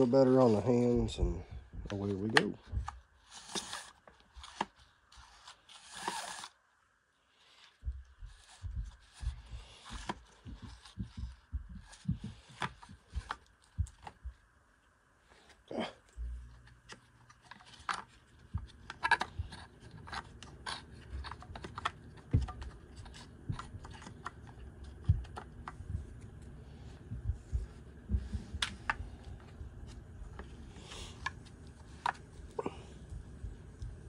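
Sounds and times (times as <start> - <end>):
faint low hum: 0.0 - 34.0
plastic and metal parts clicking: 16.6 - 25.8.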